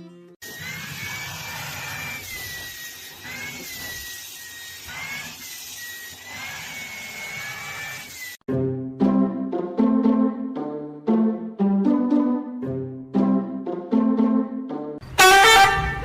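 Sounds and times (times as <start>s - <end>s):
small motor whining: 0.4s - 8.4s.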